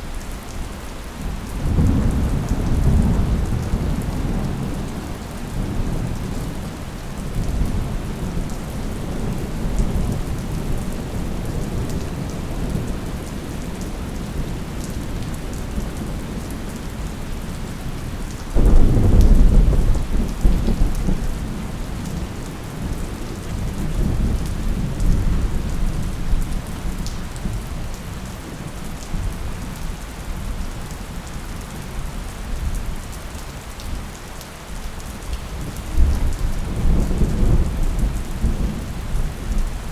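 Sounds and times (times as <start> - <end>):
steady rain falling: 0.0 - 39.9
low rolling thunder: 1.6 - 29.7, 35.6 - 39.9
loud thunder crack: 18.6 - 21.2.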